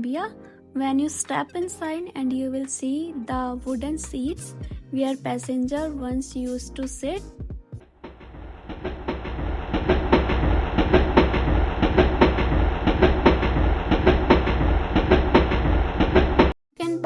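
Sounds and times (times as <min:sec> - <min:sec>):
rail car rumbling: 0:08.0 - 0:16.6
wheels clacking over rail joints: 0:08.0 - 0:16.6.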